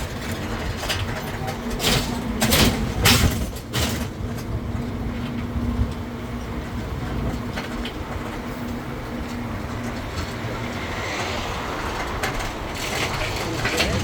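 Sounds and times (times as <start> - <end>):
engine hum: 0.0 - 14.0
rolling noise: 0.0 - 14.0.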